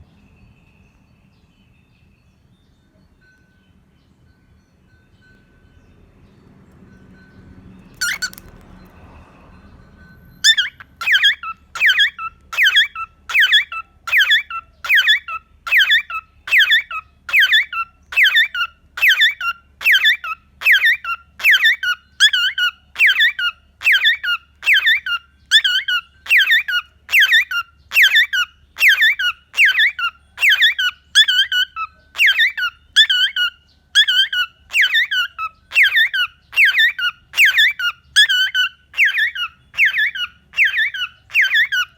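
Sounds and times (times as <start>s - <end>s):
cockatiel squeaky calls: 8.0s - 8.6s, 10.4s - 41.9s.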